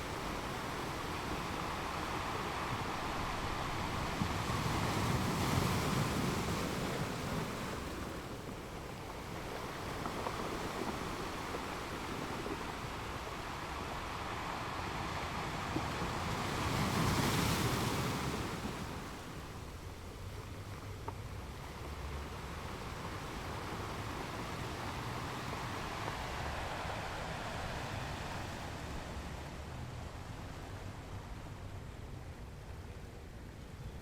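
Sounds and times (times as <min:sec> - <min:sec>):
ocean waves breaking: 0:00.0 - 0:20.3, 0:21.4 - 0:32.4.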